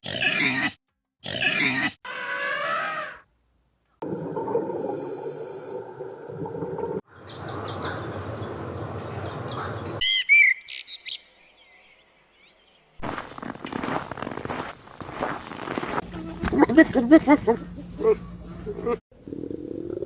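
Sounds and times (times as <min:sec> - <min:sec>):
bird chirps: 0:09.5 - 0:13.4.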